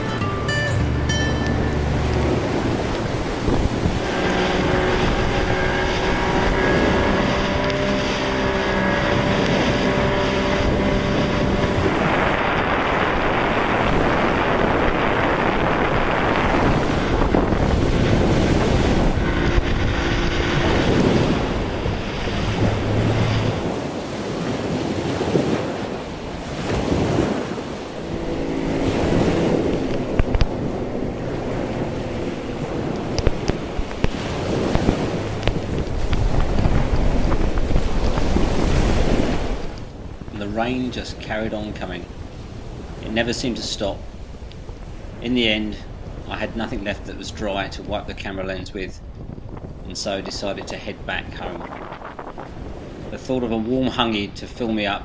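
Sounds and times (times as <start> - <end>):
motorboat engine droning: 0.0 - 55.0
water rushing: 0.0 - 55.0
waves at sea: 0.0 - 55.0
wind noise on microphone: 0.0 - 55.0.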